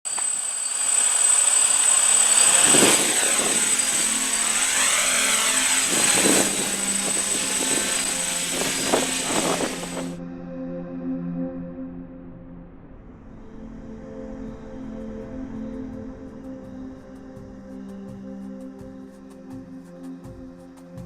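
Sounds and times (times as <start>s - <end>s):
drone motors whining: 0.0s - 10.2s
wind buffeting microphone: 2.5s - 10.2s.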